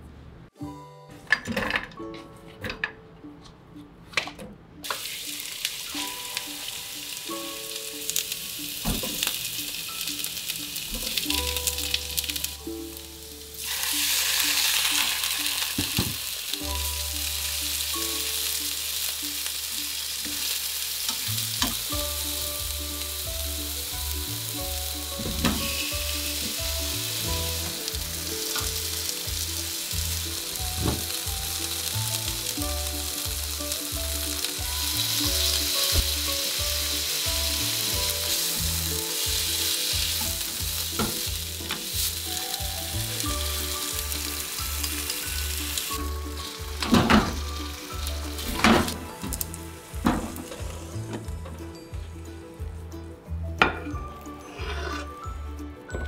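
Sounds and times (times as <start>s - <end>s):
food sizzling in a frying pan: 4.8s - 51.4s.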